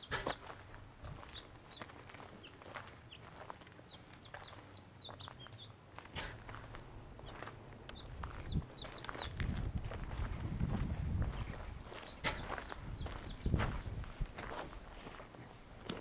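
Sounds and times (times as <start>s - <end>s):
footsteps crunching on gravel: 0.1s - 16.0s.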